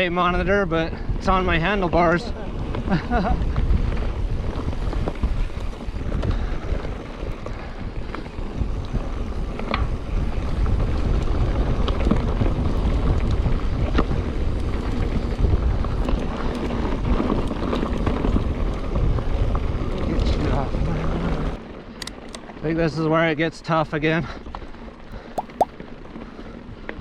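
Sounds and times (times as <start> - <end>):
bike rolling on dirt trail: 0.0 - 25.1
wind buffeting microphone: 0.2 - 16.4.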